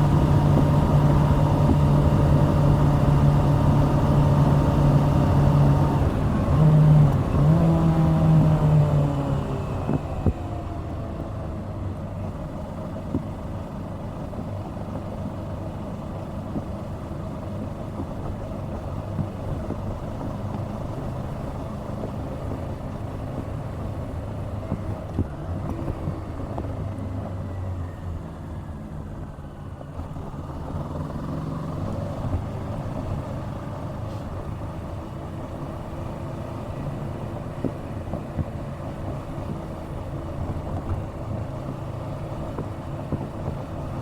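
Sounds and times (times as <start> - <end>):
motorcycle engine pulling under throttle: 0.0 - 10.5
road and wind noise: 0.0 - 44.0.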